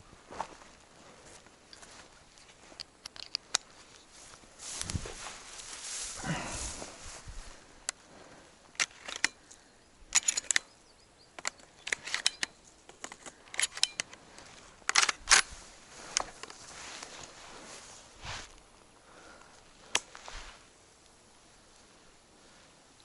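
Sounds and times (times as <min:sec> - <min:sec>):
twigs snapping underfoot: 0:19.4 - 0:20.4.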